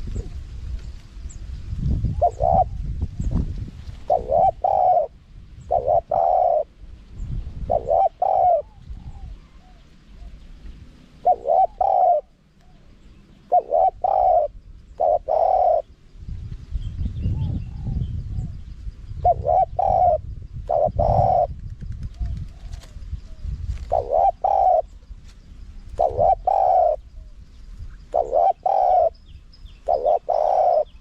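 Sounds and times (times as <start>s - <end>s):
dove cooing: 2.0s - 3.3s, 4.0s - 6.8s, 7.6s - 10.5s, 11.2s - 16.0s, 19.2s - 25.1s, 25.9s - 27.4s, 28.0s - 31.0s.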